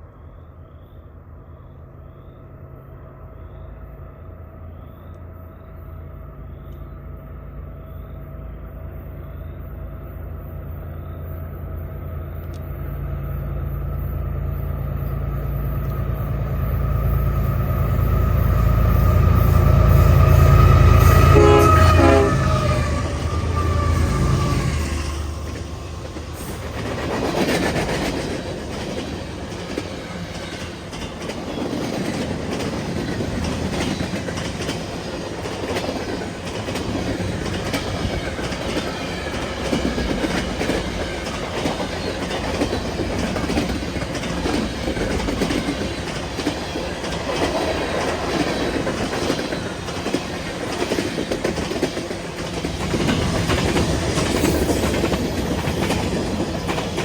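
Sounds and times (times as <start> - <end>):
freight train cars rolling past: 0.0 - 57.0
wheels clicking over rail joints: 21.6 - 57.0.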